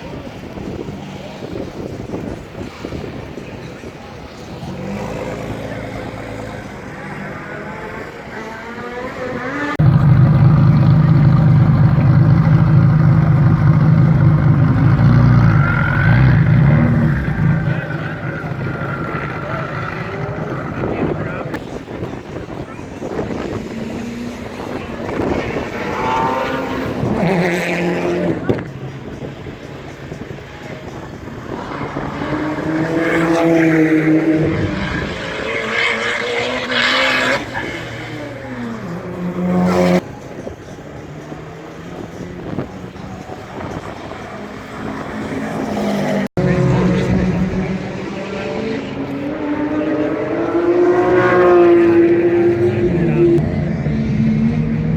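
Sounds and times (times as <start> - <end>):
race car engines running hard: 0.0 - 54.9
car engine running: 9.8 - 26.3.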